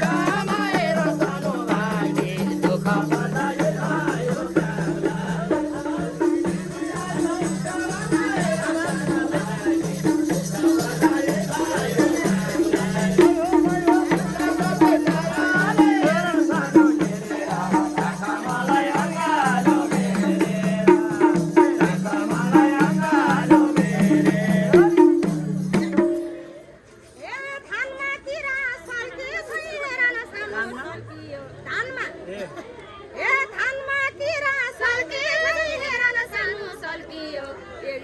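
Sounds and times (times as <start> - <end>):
rattling percussion: 0.0 - 27.2.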